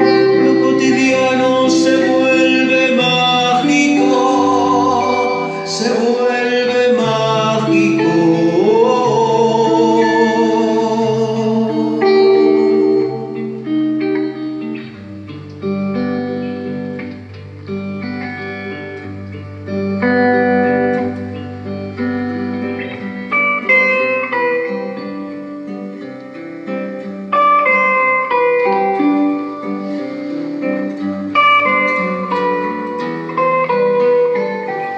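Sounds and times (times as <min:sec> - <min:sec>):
guitar playing plucked melody: 0:00.0 - 0:34.9.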